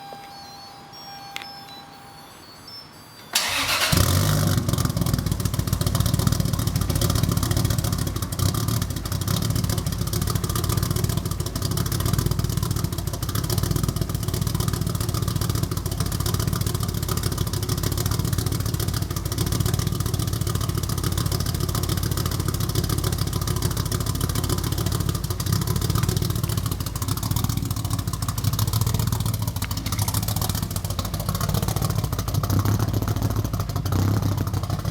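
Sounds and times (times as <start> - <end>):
car engine starting and idling loudly: 2.7 - 34.9.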